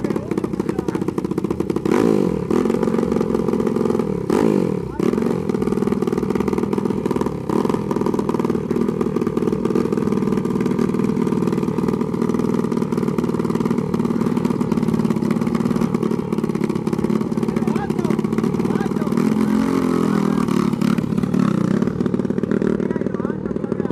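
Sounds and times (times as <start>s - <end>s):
dirt bike engine running: 0.0s - 23.9s.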